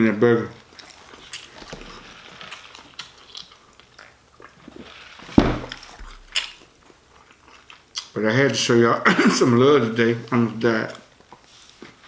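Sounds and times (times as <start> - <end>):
loud thump: 5.4 - 6.3
chewing with wet mouth clicks: 6.3 - 8.2.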